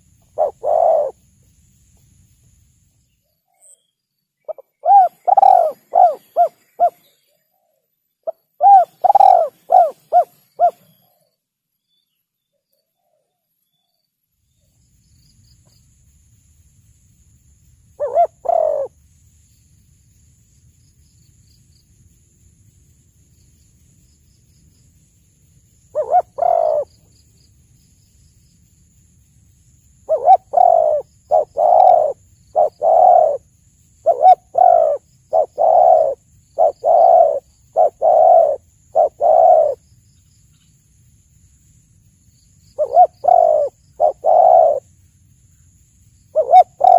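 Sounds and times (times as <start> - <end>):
dove cooing: 0.3 - 1.2, 4.5 - 7.1, 8.3 - 11.0, 18.0 - 18.9, 25.9 - 26.9, 30.1 - 39.8, 42.8 - 44.9, 46.3 - 46.9.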